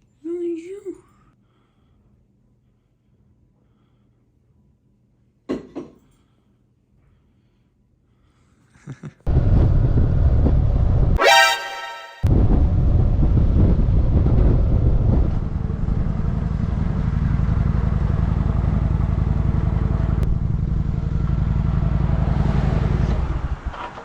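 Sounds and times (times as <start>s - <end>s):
wind buffeting microphone: 12.3s - 17.7s.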